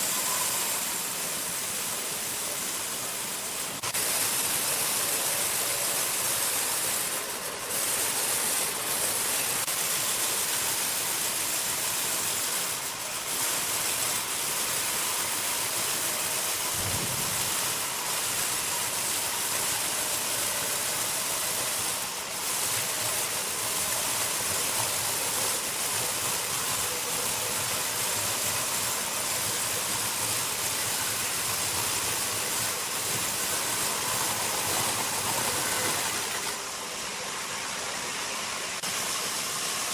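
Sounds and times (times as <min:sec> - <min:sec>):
sawmill machinery hissing: 0:00.0 - 0:39.9
short low thump: 0:16.8 - 0:17.6.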